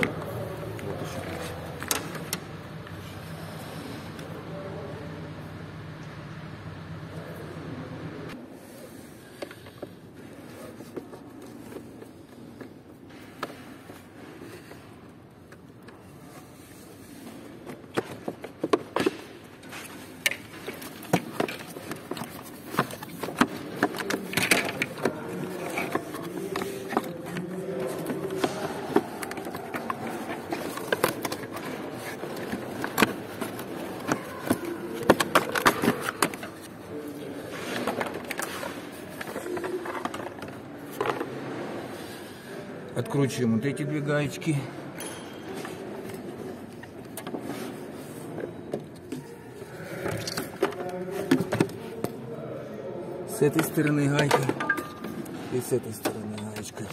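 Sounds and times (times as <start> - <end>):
hand tools and car parts clinking: 17.3 - 36.8, 53.5 - 56.9.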